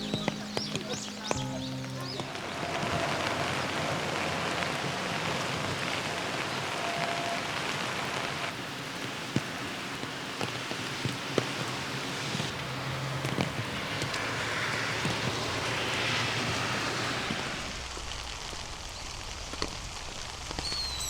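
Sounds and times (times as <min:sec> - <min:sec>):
drips tapping: 0:00.0 - 0:03.3
steady rain falling: 0:00.0 - 0:21.0.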